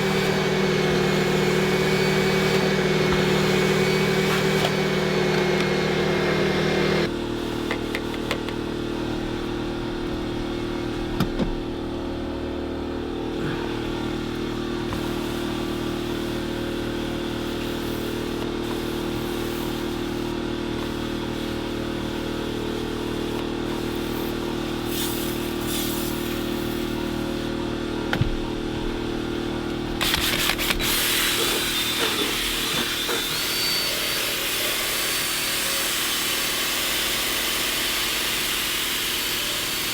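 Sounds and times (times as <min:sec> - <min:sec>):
small electric motor humming: 0:00.0 - 0:08.6, 0:30.0 - 0:39.9
hiss: 0:24.9 - 0:27.0.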